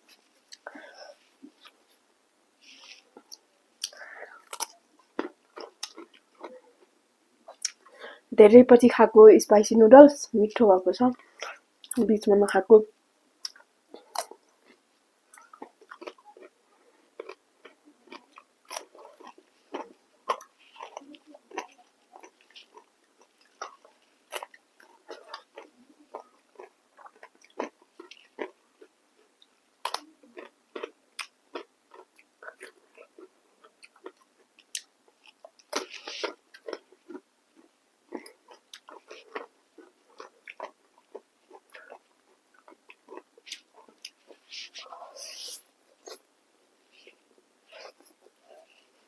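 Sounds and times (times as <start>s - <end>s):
person chewing crunchy food: 2.7s - 7.9s, 13.4s - 46.3s
mouth clicks and smacks: 7.5s - 7.9s, 13.4s - 16.5s.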